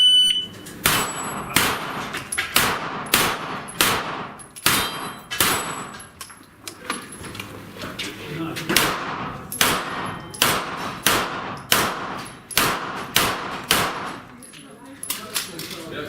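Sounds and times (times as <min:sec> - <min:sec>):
pistol gunshots: 0:00.8 - 0:05.9, 0:08.8 - 0:14.3
steel plate ringing: 0:04.7 - 0:06.0.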